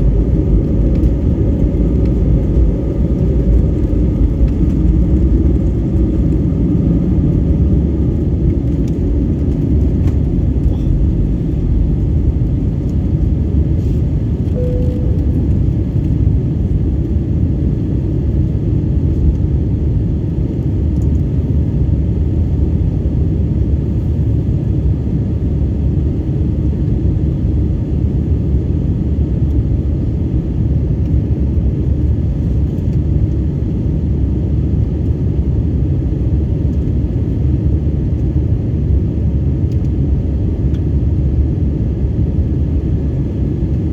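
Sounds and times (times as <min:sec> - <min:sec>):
aircraft engines rumbling: 0:00.0 - 0:43.9
short single tone: 0:14.4 - 0:16.0.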